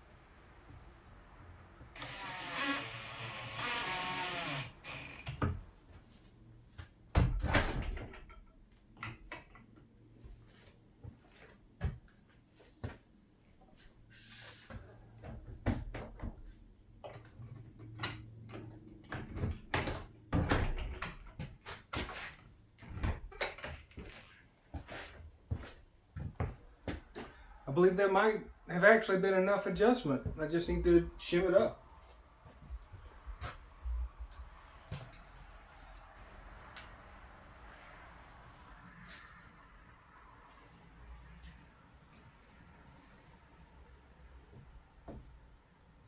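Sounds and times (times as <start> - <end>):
power drill running: 1.8 - 5.7.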